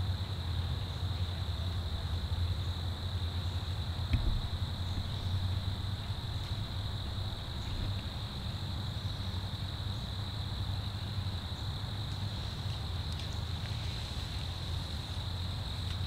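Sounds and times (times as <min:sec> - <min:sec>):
insect chorus: 0:00.0 - 0:16.0
wind rumble on microphone: 0:04.0 - 0:09.2.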